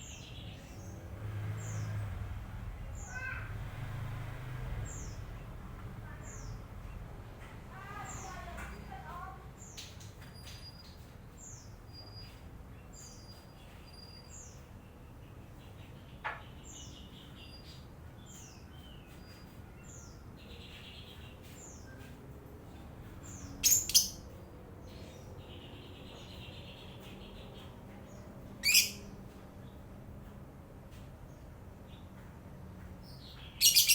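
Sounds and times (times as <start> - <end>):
lovebird chirping: 23.4 - 24.4, 28.6 - 29.1, 33.3 - 33.9
bird shrill calls: 23.6 - 24.2, 28.6 - 29.1, 33.6 - 33.9.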